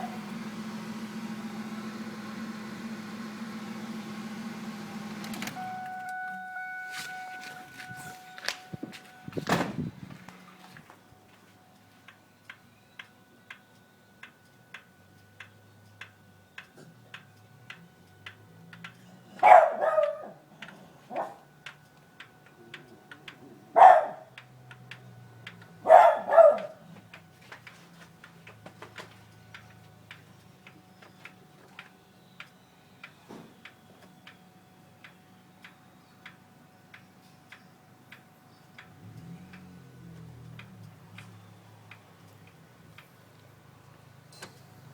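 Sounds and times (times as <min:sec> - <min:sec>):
engine ticking after shutdown: 0:00.0 - 0:06.3
dog barking: 0:19.4 - 0:20.4, 0:21.1 - 0:21.4, 0:23.8 - 0:24.3, 0:25.8 - 0:26.8.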